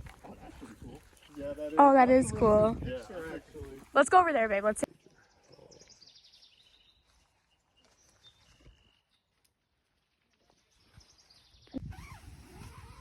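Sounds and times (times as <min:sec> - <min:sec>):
faint high bird chirps: 0:05.2 - 0:09.4.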